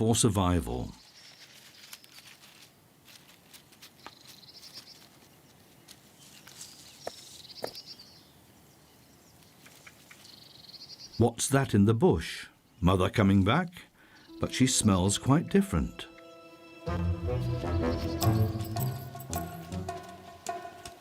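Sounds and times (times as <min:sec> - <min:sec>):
ticks and rustles in leaf litter: 0:01.0 - 0:07.5.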